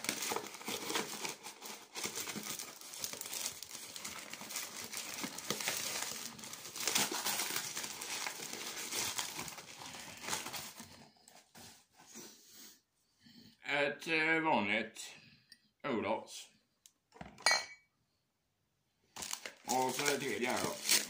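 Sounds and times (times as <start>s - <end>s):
packing wrap crinkling: 0.0s - 11.8s, 19.1s - 21.0s.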